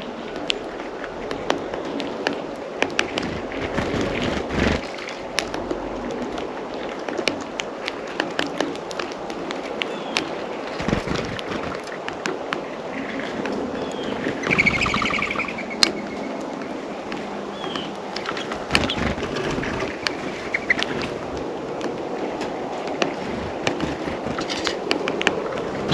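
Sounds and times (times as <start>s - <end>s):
birds chirping: 0.0s - 25.9s
outdoor background noise: 0.0s - 25.9s
beaks tapping on feeder: 13.5s - 22.0s
bird chattering: 13.8s - 16.4s, 17.4s - 21.0s.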